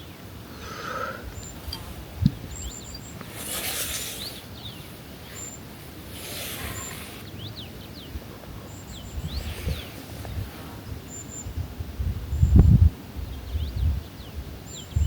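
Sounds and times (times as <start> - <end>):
small birds chirping: 0.0 - 15.0
soft rustling noise: 1.3 - 8.0, 9.0 - 11.5.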